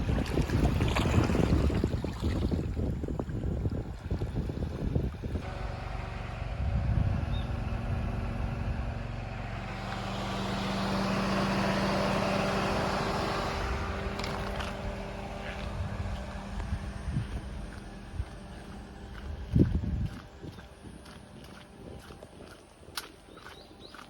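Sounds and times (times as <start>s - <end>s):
wind buffeting microphone: 0.0s - 24.0s
vehicle passing: 5.4s - 24.0s.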